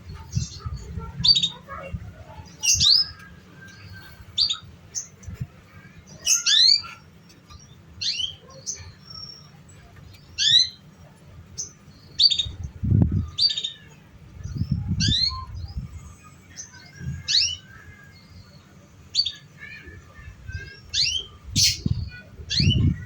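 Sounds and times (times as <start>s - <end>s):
canary chirping: 20.8s - 23.0s.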